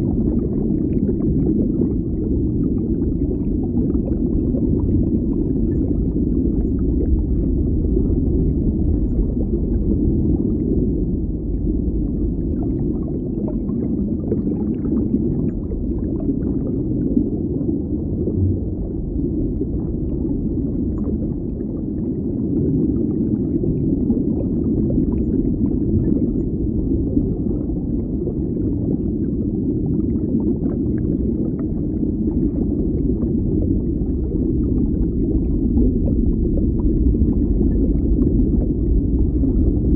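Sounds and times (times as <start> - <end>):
low underwater rumble: 0.0 - 39.9.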